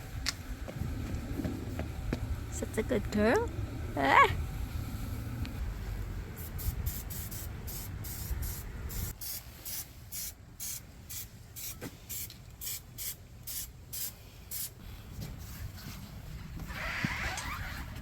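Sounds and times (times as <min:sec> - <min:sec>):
low rumble: 0:00.0 - 0:09.1
compressed air hissing bursts: 0:06.3 - 0:14.9.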